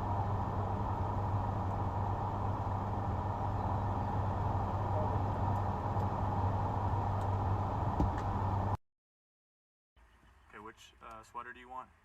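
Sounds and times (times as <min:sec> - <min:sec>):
car engine hum from inside: 0:00.0 - 0:08.8.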